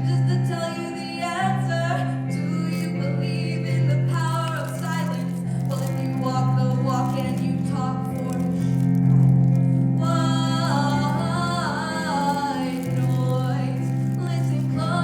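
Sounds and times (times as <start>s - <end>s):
solo singer: 0.0s - 9.3s, 9.9s - 15.0s.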